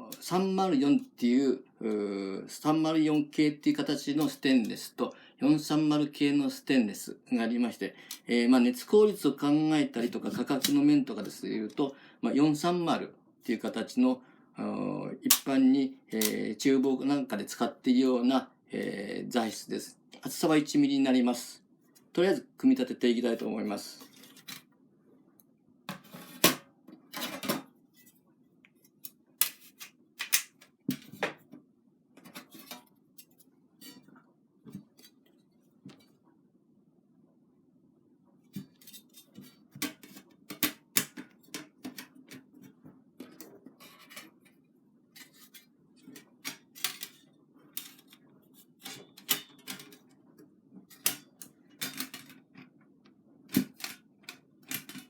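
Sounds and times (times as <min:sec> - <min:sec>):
faint steady hum: 0:00.0 - 0:55.0
metal parts clicking and clacking: 0:45.4 - 0:48.2, 0:48.8 - 0:50.1, 0:50.9 - 0:52.6.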